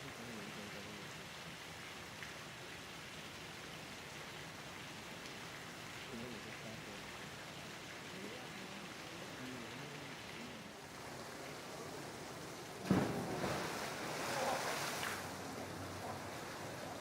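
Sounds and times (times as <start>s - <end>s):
water churning and sloshing: 10.7s - 17.0s
heavy splash: 12.8s - 16.8s.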